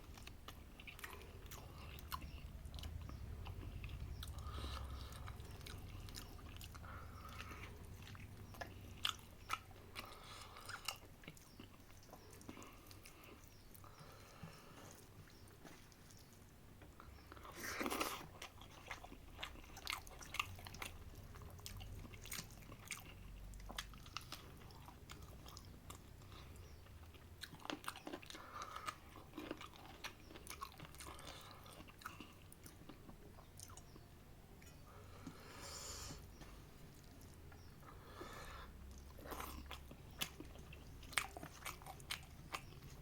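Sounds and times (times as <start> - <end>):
person chewing food: 0.0 - 43.0.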